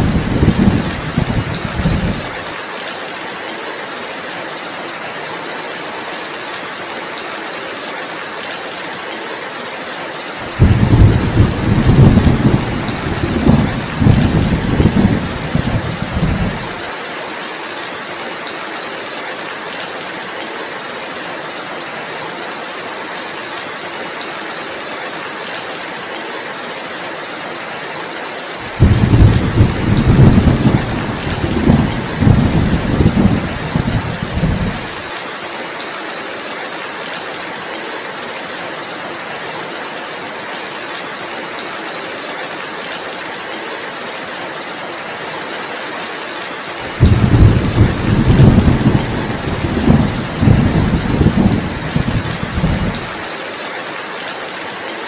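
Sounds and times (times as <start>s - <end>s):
rolls of thunder: 0.0s - 2.3s, 10.6s - 16.6s, 28.7s - 35.0s, 46.9s - 53.1s
heavy rain: 0.0s - 55.0s.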